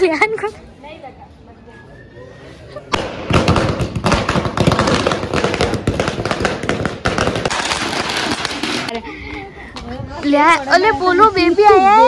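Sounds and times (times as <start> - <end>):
firecracker crackling and banging: 2.9 - 9.0.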